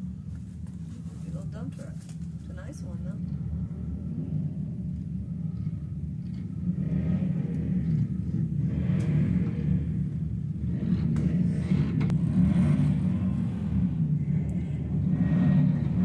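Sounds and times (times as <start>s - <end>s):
motorcycle engines rumbling: 0.0s - 16.0s.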